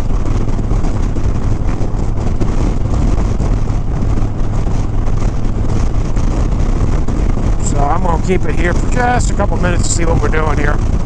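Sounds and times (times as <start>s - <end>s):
motorcycle engine running: 0.0s - 11.0s
wind rushing over microphone: 0.0s - 11.0s.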